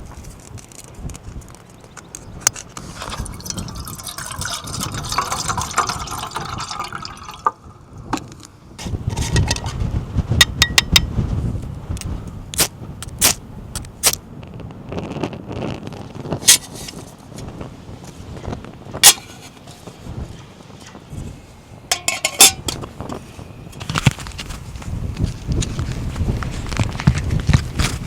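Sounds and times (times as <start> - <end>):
seawater sloshing and lapping: 2.9 - 7.5.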